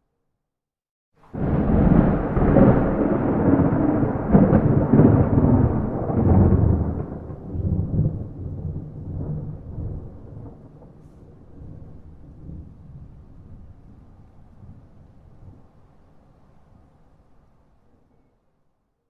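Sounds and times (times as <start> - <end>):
thunder rumbling: 1.3 - 15.8.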